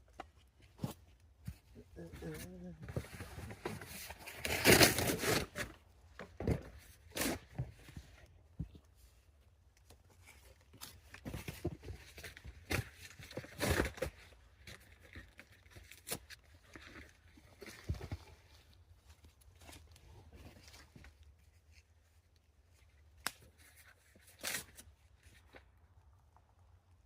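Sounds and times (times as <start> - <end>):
dry kindling crumpling and snapping: 0.0 - 27.0.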